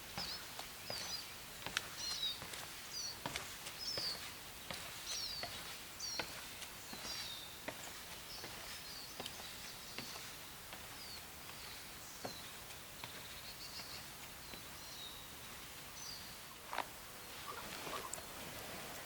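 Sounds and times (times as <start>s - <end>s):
songbirds chirping: 0.0s - 19.0s
footsteps clicking: 0.1s - 14.7s.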